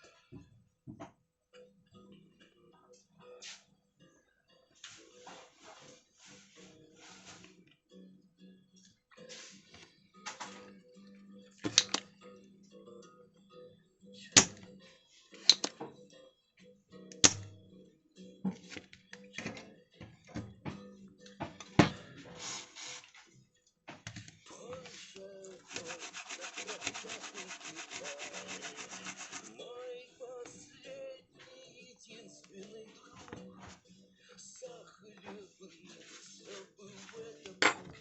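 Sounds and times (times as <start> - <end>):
hand tools scraping and clicking: 25.6 - 29.6.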